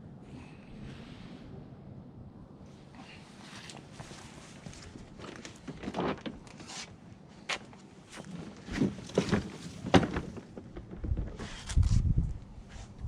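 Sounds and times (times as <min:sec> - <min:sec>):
knocks and clatters of objects: 0:07.5 - 0:11.8.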